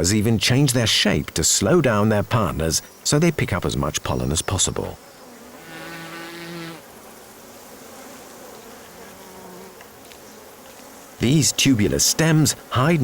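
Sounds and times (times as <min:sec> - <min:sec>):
soft background hiss: 0:00.0 - 0:13.0
flying insect buzzing: 0:04.7 - 0:13.0.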